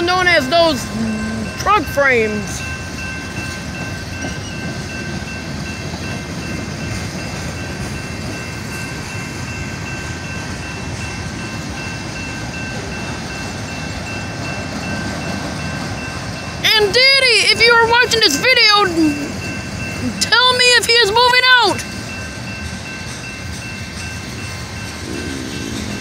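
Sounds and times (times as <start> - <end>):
high-pitched tone: 0.0 - 5.4
freight train wheels rumbling: 0.0 - 26.0.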